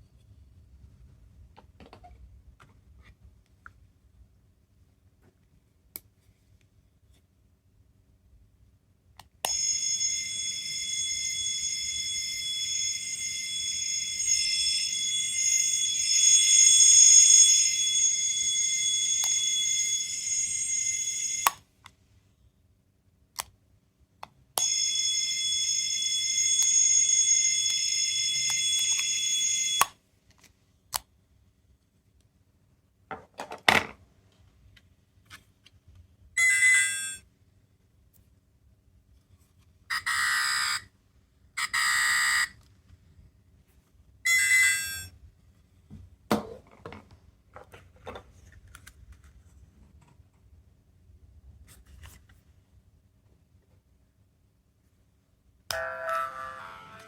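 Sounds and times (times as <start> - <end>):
electronic alarm-like ring: 9.5 - 21.6, 24.6 - 29.9, 36.4 - 37.2, 44.3 - 45.1, 55.7 - 57.0.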